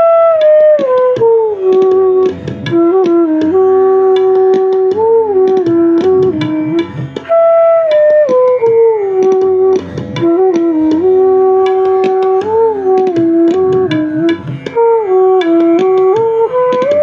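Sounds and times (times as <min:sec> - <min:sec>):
bamboo flute slow melody: 0:00.0 - 0:17.0.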